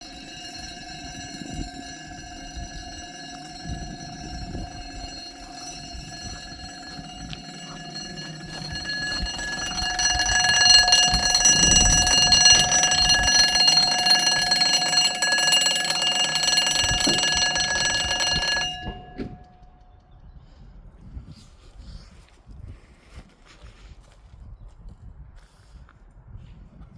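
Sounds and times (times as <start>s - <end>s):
level crossing warning alarm: 0.0s - 19.8s.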